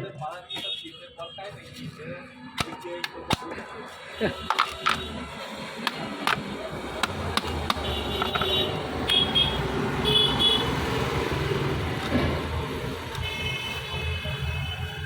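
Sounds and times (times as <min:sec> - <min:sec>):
road traffic rumble: 0:00.0 - 0:15.0
car horn honks: 0:07.7 - 0:10.8, 0:13.2 - 0:15.0.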